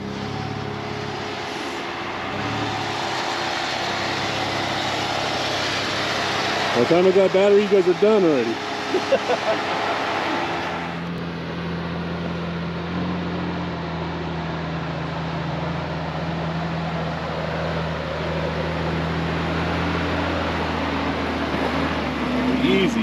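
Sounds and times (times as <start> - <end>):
vehicle engine idling: 0.0 - 23.0.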